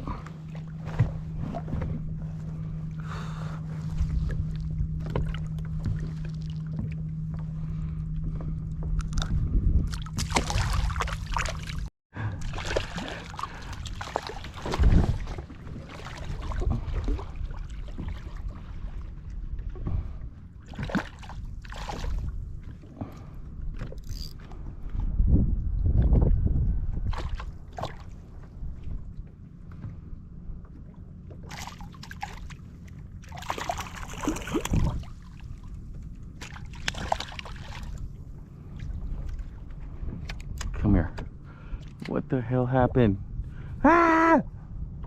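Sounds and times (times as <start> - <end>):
steady low hum: 0.0 - 45.0
water splashing against kayak hull: 8.4 - 24.5, 31.3 - 40.7.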